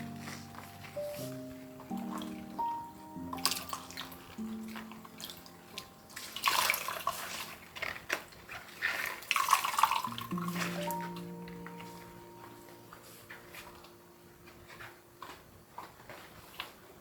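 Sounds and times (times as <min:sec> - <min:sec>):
soft background music: 0:00.0 - 0:17.0
tap water running into sink: 0:08.9 - 0:11.0.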